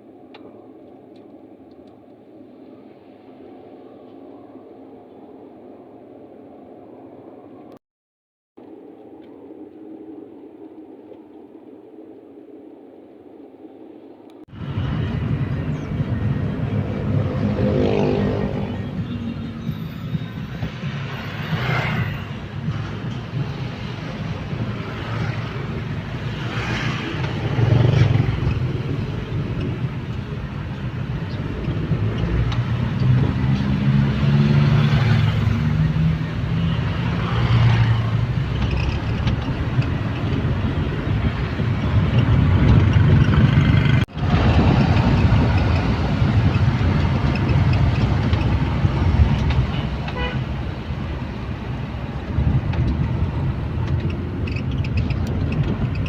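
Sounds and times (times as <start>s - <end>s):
vehicle engine and road noise: 14.0s - 56.0s
horn toot: 49.7s - 50.6s.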